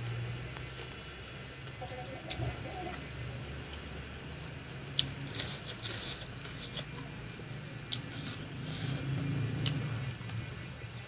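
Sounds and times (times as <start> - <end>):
chewing with crunching clicks: 3.7 - 10.8.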